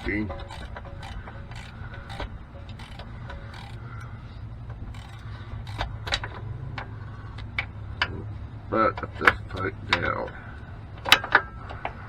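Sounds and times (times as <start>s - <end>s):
hand tools clicking and tapping: 0.0s - 8.2s, 11.0s - 12.0s
sharp clicks: 0.0s - 8.2s
steady low hum: 0.0s - 12.0s.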